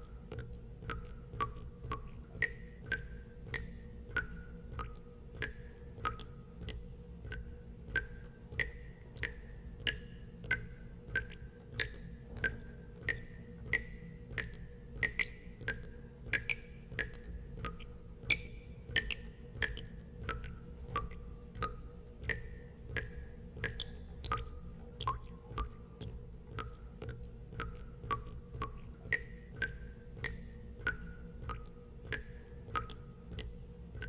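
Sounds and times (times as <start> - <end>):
water drops plinking into water: 0.0 - 34.0.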